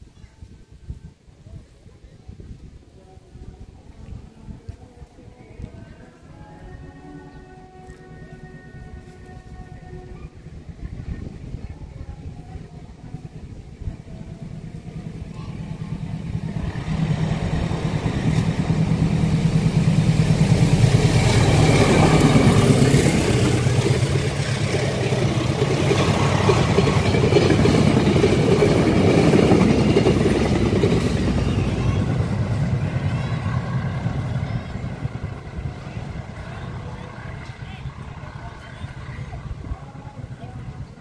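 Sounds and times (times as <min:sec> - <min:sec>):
wheels rumbling on rails: 0:10.4 - 0:41.0
diesel engine drone: 0:13.4 - 0:41.0.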